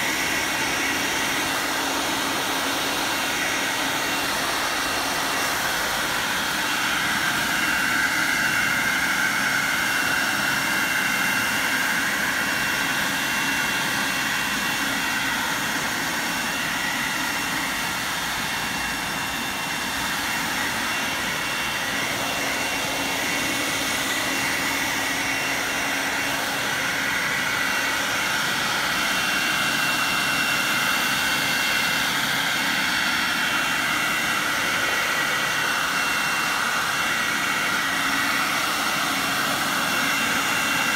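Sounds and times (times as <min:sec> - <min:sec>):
leaf vacuum running: 0:00.0 - 0:40.9.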